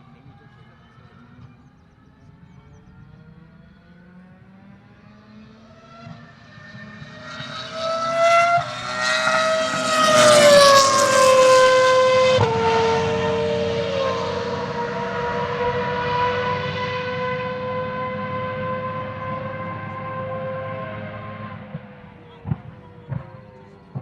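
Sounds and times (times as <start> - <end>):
racing car engine at full throttle: 0.0 - 24.0.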